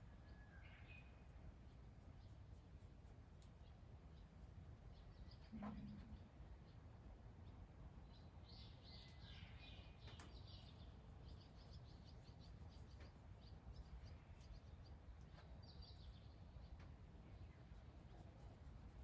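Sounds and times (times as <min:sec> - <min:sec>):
faint bird chirps: 0:00.0 - 0:02.4, 0:05.0 - 0:06.8, 0:08.1 - 0:19.0.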